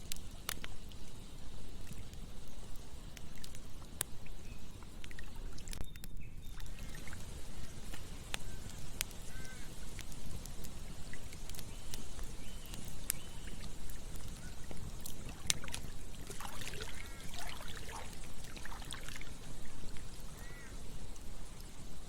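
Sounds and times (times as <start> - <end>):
campfire crackling and popping: 0.0 - 22.0
short bird calls: 8.4 - 9.8, 19.7 - 20.8
river water flowing: 13.3 - 20.7.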